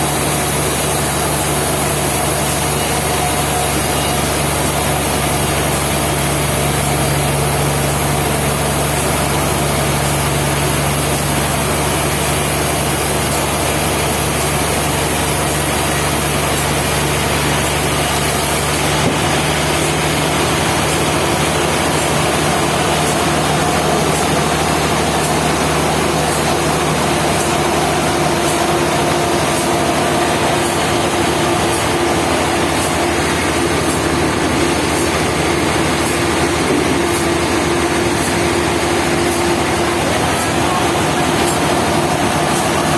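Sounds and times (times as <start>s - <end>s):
sawmill machinery drone: 0.0s - 42.9s.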